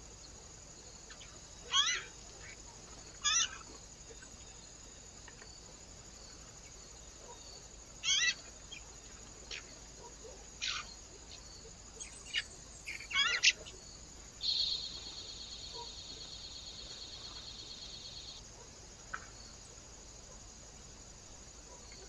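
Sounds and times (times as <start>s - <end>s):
faint steady hiss: 0.0s - 22.0s
small birds chattering: 7.2s - 8.9s, 9.5s - 18.4s.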